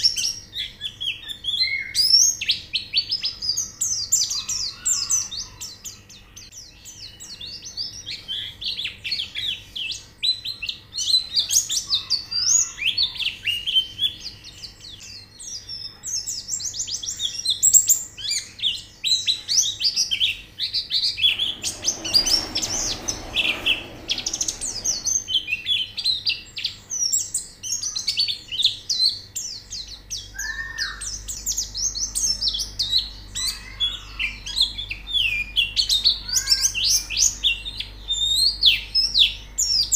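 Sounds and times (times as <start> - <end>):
birds chirping and twittering: 21.0 - 26.0
hiss of noise: 21.2 - 25.5.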